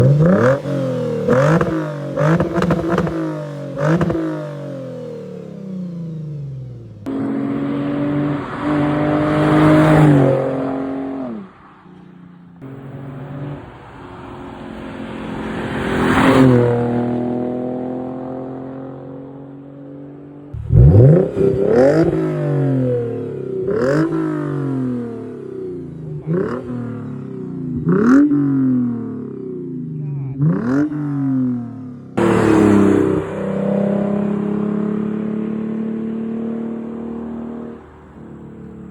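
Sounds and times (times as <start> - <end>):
car exhaust revving: 0.0 - 11.7, 20.5 - 38.9.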